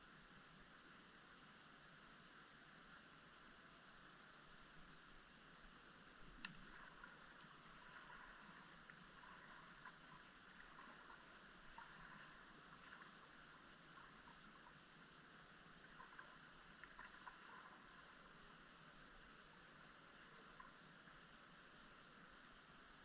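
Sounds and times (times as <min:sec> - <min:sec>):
faint steady hiss: 0:00.0 - 0:23.0
faint ticks: 0:06.2 - 0:23.0.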